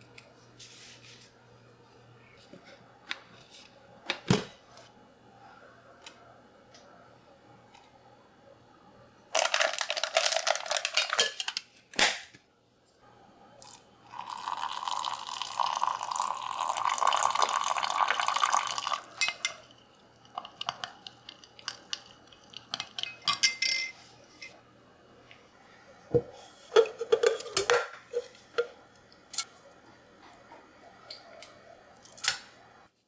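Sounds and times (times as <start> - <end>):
dishes and utensils clinking: 10.3 - 11.6, 19.1 - 24.6, 26.2 - 28.8.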